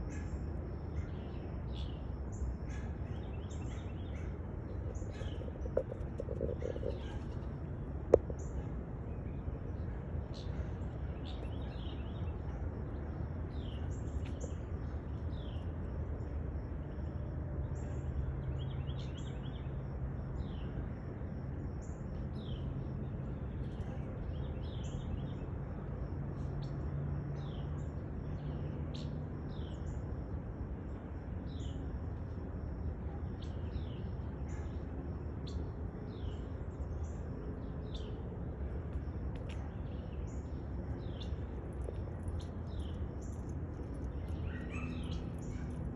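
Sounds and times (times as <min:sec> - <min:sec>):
steady low rumble: 0:00.0 - 0:45.9
small birds chirping: 0:38.9 - 0:45.9.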